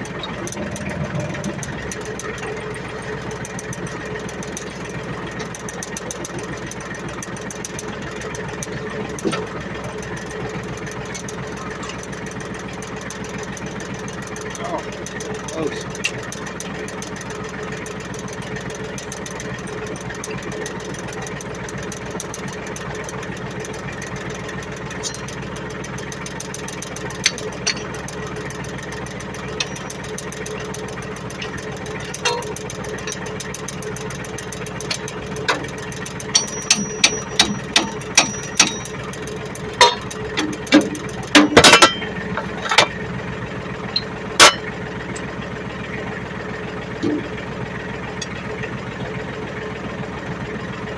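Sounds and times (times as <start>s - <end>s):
diesel tractor engine idling: 0.0s - 50.9s
sharp knocks and clanks: 31.3s - 33.3s, 36.3s - 39.0s, 39.8s - 43.0s, 44.0s - 45.3s.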